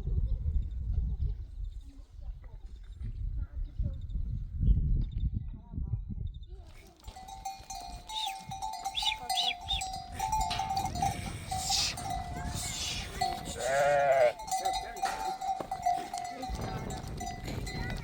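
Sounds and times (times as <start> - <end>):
livestock bells ringing: 7.0 - 18.0
sheep or goat bleating: 8.1 - 16.3.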